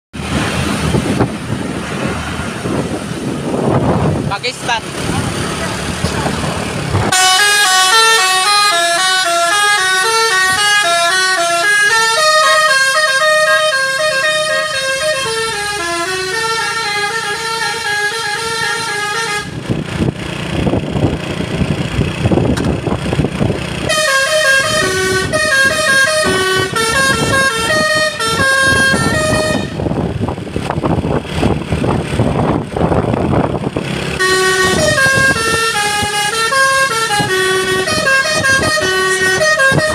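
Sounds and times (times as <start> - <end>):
musical truck horn melody: 7.1 - 19.8, 23.8 - 30.1, 34.1 - 39.9.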